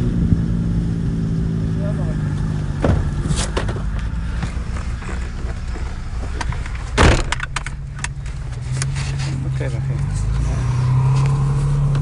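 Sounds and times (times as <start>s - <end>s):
car engine rumble from cabin: 0.0s - 12.0s
sudden thump: 2.8s - 3.9s, 6.9s - 7.7s.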